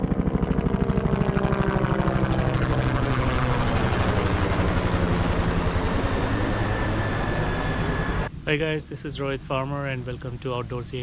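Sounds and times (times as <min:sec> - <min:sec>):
aircraft drone with pulsing beat: 0:00.0 - 0:08.4.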